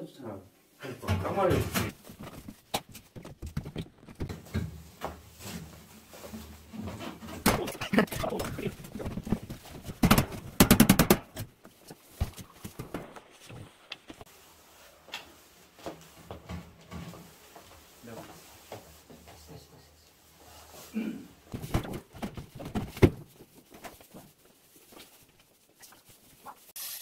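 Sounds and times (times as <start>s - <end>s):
handling clatter and knocks: 1.1s - 13.6s, 21.5s - 24.4s.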